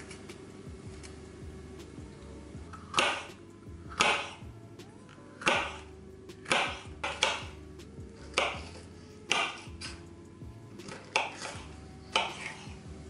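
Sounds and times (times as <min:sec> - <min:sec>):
quiet background music: 0:00.0 - 0:13.0
knife chopping on cutting board: 0:02.9 - 0:03.3, 0:03.9 - 0:04.4, 0:06.4 - 0:07.5, 0:08.3 - 0:09.7, 0:10.8 - 0:12.6.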